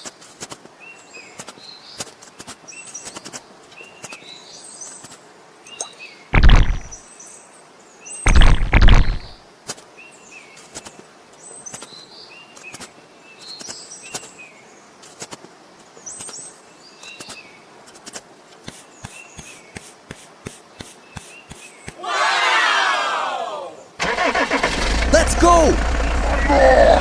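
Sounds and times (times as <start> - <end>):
bird chirps: 5.6 - 7.0
sharp clicks: 6.4 - 7.0, 8.3 - 9.4.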